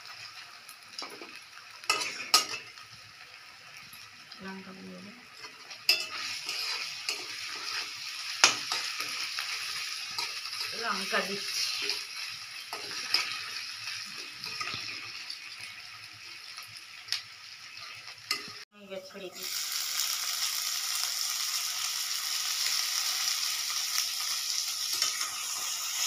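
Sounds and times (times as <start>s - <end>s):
vegetables sizzling in hot oil: 0.0s - 26.0s
spatula stirring in pan: 1.0s - 2.9s, 5.3s - 15.3s.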